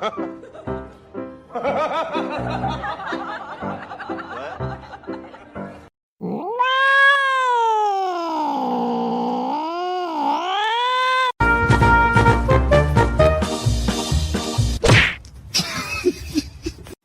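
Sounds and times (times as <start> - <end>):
background music: 0.0 - 5.9, 11.4 - 14.8
cat yowling: 6.2 - 11.4.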